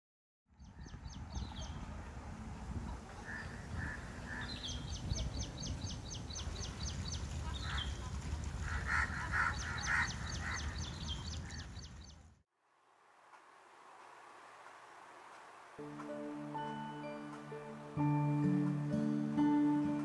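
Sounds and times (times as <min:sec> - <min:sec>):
steady low rumble: 0:00.7 - 0:07.4
lower louder bird calls: 0:03.1 - 0:08.0, 0:08.7 - 0:12.4.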